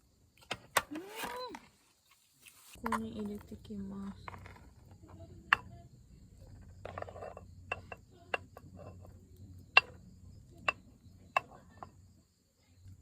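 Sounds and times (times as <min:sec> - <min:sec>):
faint low hum: 0:02.7 - 0:13.0.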